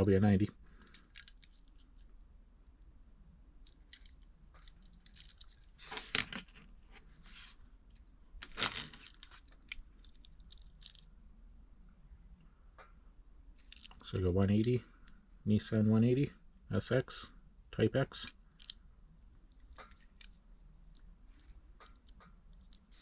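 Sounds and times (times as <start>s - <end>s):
light clicks and taps of toy cars: 0.8s - 2.1s, 3.6s - 6.3s, 19.5s - 23.0s
rustling scrapes: 5.4s - 7.7s.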